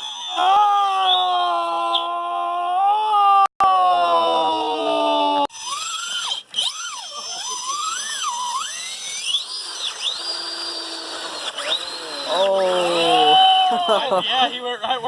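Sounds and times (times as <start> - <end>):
electric motor whining: 5.5 - 14.4.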